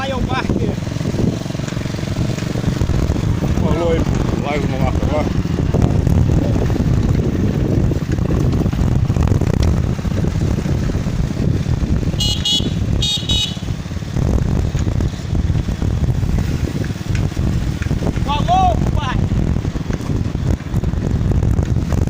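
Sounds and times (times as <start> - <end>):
wind rumble on microphone: 0.0 - 22.0
short high-pitched horn toots: 12.2 - 13.7.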